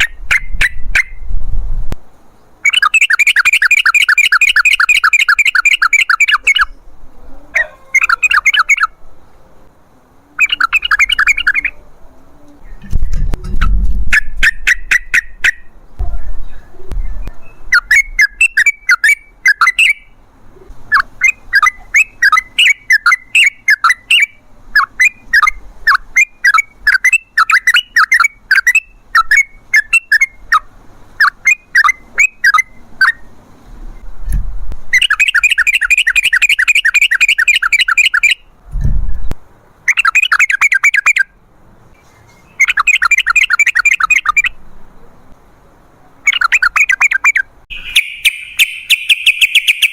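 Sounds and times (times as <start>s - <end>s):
bird chattering calls: 2.6s - 6.8s, 7.5s - 9.0s, 10.3s - 11.8s, 17.4s - 33.2s, 35.0s - 38.4s, 39.9s - 41.3s, 42.4s - 44.6s, 46.2s - 49.9s
bird harsh rattling: 47.7s - 49.9s.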